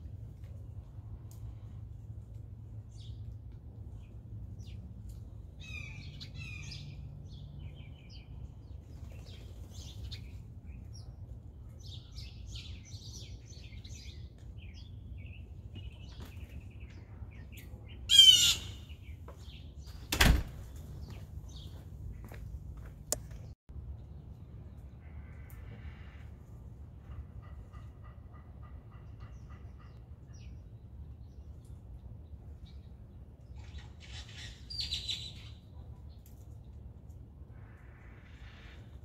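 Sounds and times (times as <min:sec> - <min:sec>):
low background hum: 0:00.0 - 0:39.0
blue jay call: 0:18.1 - 0:18.9.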